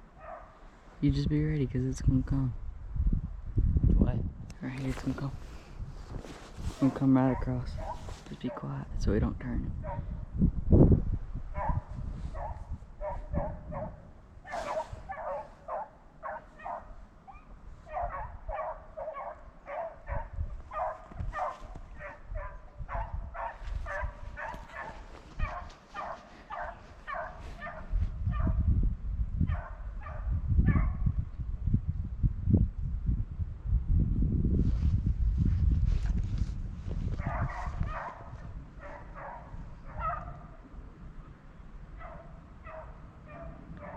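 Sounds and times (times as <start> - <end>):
hounds baying: 0.0 - 0.6, 7.3 - 8.8, 9.8 - 10.2, 11.6 - 28.6, 37.2 - 40.7, 42.0 - 43.9.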